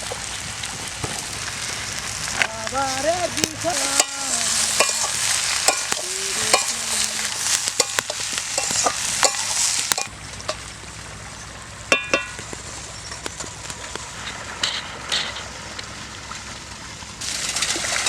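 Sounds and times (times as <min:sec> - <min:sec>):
vegetables sizzling in oil: 0:00.0 - 0:13.1
spatula stirring and scraping: 0:02.9 - 0:10.1
metal clicking on pan: 0:03.8 - 0:10.6.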